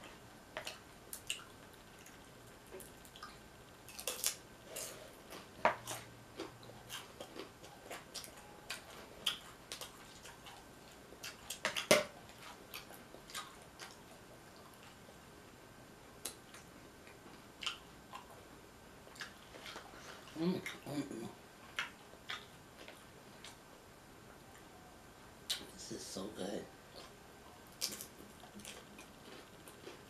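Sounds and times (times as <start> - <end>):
tortilla chips crunching: 3.9 - 10.6, 27.7 - 30.0.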